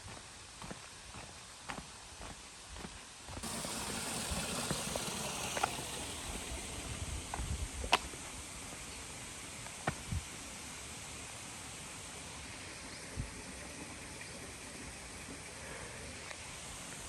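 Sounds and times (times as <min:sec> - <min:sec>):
footsteps on a trail: 0:00.0 - 0:03.5
steady hiss: 0:03.4 - 0:17.0.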